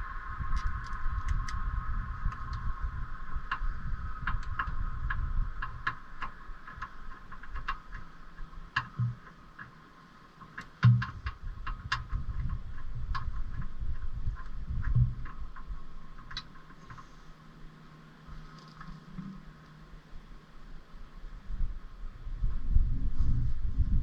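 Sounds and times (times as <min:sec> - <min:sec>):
low rumble: 0:00.0 - 0:09.3, 0:10.8 - 0:24.0
light clicks and ticks: 0:03.5 - 0:17.3.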